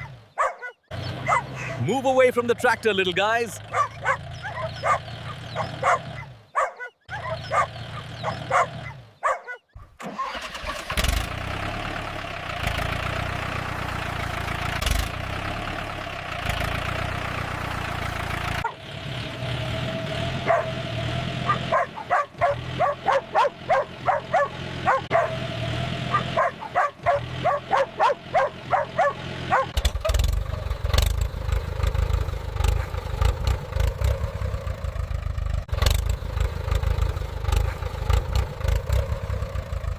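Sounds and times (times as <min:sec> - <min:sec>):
dogs barking: 0:00.0 - 0:01.9, 0:03.6 - 0:09.8, 0:18.6 - 0:18.9, 0:20.4 - 0:29.8, 0:32.7 - 0:33.0
tractor engine running: 0:00.0 - 0:39.9.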